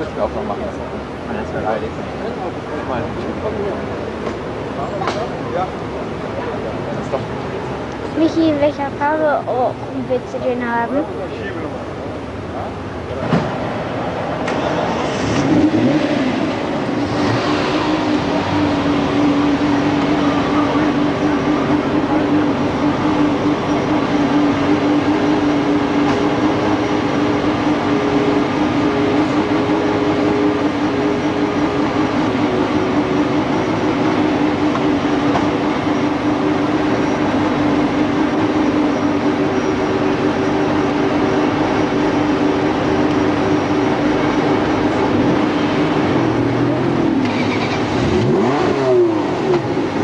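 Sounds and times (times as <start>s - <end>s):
car engine idling: 0.0s - 50.0s
car engine revving: 0.0s - 50.0s.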